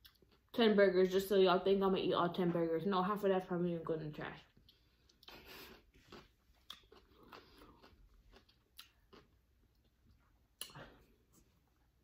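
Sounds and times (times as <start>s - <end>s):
chewing and crunching food: 0.0s - 0.6s, 4.5s - 11.4s.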